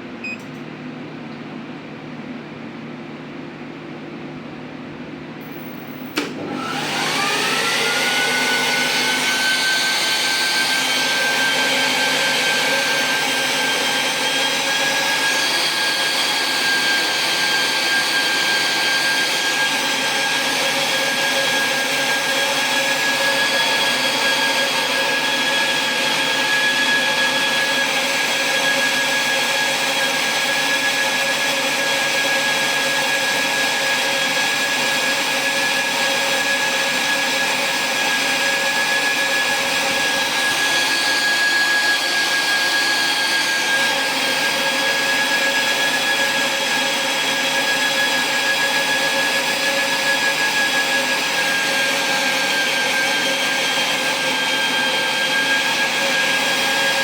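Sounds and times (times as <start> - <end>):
medical device motor whine: 5.4 - 31.4.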